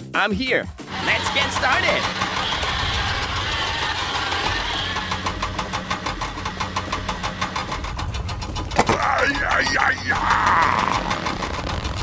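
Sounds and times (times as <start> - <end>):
vehicle engine chugging: 0.8 - 12.0.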